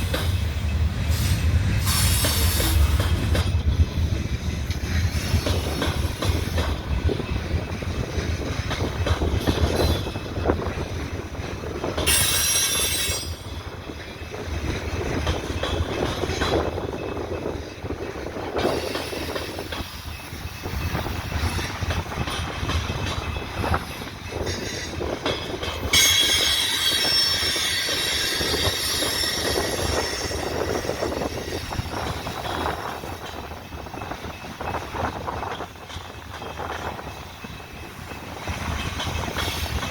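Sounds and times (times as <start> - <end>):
train wheels rumbling and clacking: 0.0 - 39.9
wheel flanges squealing: 25.8 - 32.8.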